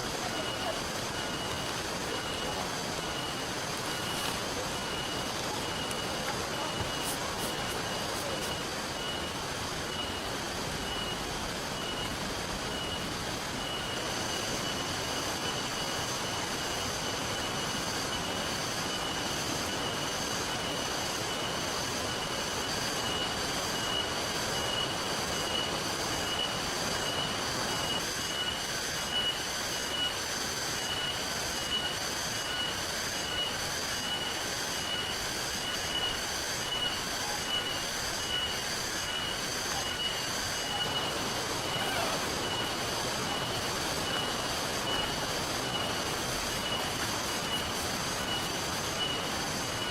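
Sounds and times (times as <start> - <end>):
steady rain: 0.0 - 49.9
river water running: 21.9 - 49.9.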